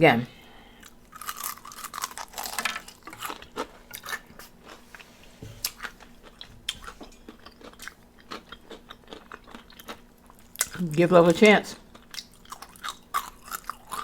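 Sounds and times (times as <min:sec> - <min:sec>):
crunchy bites and chewing: 0:00.8 - 0:04.8, 0:11.9 - 0:14.0.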